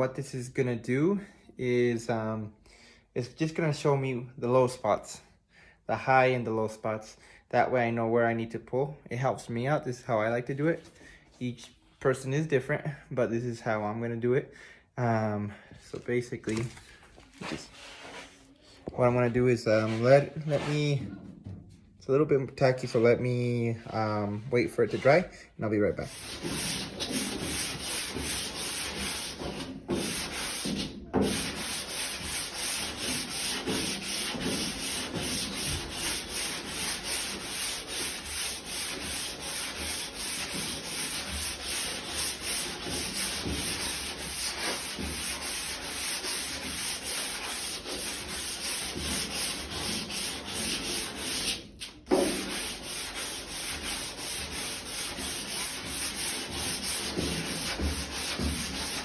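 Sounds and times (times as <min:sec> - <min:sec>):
sanding block rubbing on car panel: 0:26.1 - 0:59.0.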